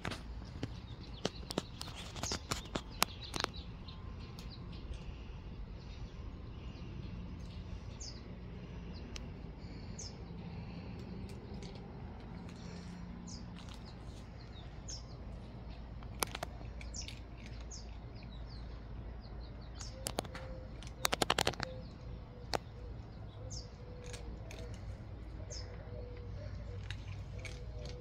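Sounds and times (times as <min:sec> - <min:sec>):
small birds chirping: 0:00.0 - 0:28.0
sharp clicks: 0:16.0 - 0:17.8, 0:19.8 - 0:22.7.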